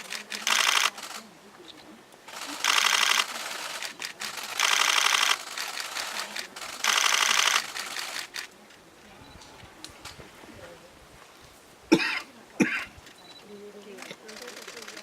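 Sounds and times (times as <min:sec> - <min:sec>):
camera shutter clicking bursts: 0:00.0 - 0:01.3, 0:02.3 - 0:08.5, 0:14.0 - 0:15.0.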